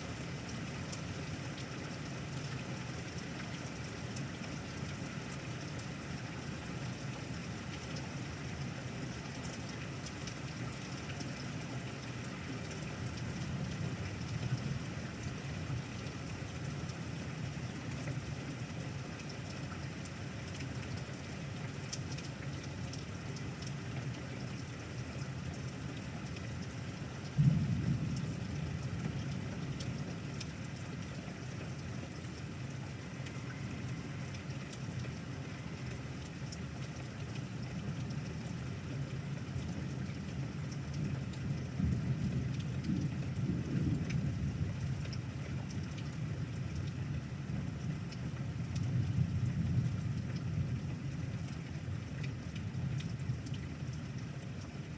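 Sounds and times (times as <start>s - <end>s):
steady rain: 0.0s - 54.9s
thunder clap and rumble: 27.4s - 29.7s.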